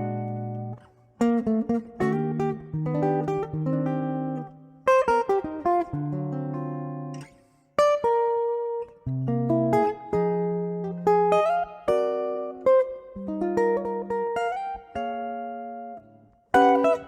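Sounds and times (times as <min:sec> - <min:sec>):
solo jazz guitar: 0:00.0 - 0:17.0.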